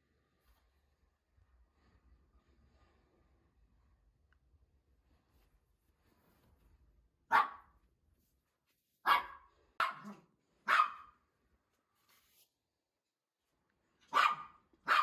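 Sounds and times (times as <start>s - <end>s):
dog barking: 7.3s - 7.8s, 9.0s - 11.2s, 14.0s - 15.0s.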